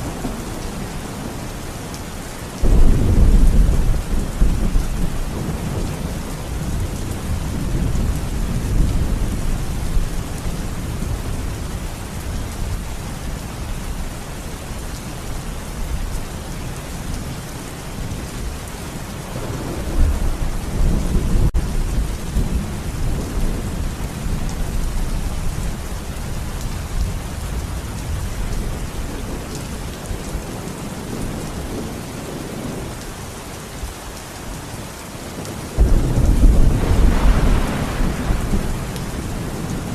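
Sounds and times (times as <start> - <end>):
steady rain falling: 0.0 - 39.9
low rolling thunder: 2.6 - 12.9, 18.0 - 33.0, 35.4 - 39.9.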